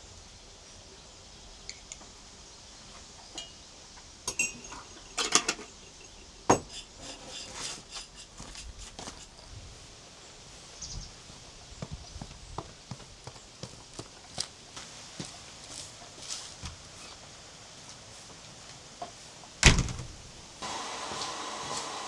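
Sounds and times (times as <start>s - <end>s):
kitchenware clinking and knocking: 4.3s - 7.9s.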